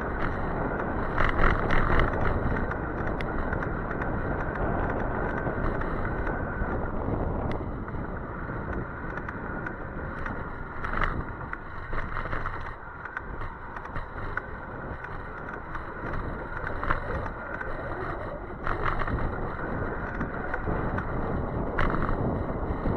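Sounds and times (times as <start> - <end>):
wind buffeting microphone: 0.0 - 22.9
road noise: 0.1 - 22.9.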